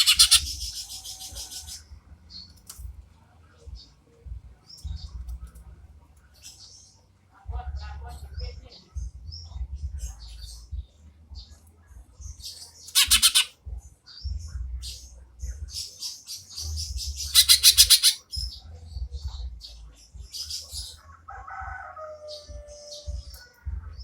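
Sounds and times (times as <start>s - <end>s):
rapid rattling bird trill: 0.0s - 1.8s, 12.4s - 13.5s, 15.8s - 18.5s
bird chirps and whistles: 13.0s - 13.5s, 17.2s - 18.2s.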